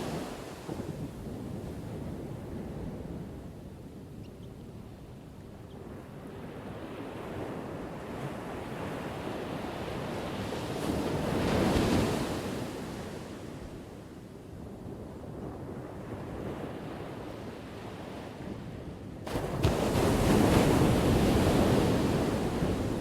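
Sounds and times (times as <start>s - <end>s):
ocean surf crashing: 19.3s - 23.0s.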